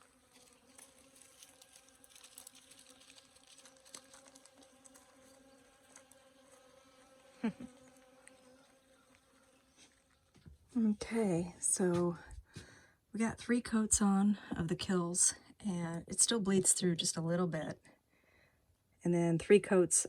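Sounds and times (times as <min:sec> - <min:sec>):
bees buzzing: 0:00.0 - 0:10.4.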